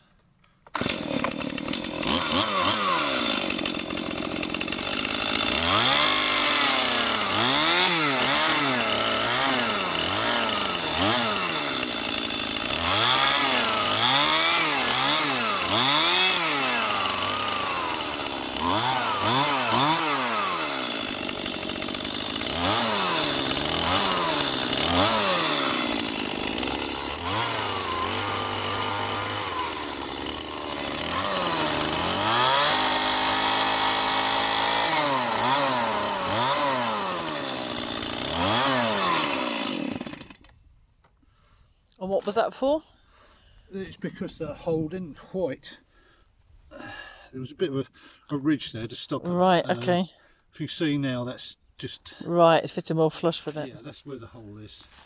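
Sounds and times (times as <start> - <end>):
chainsaw cutting wood: 0.6 - 40.6.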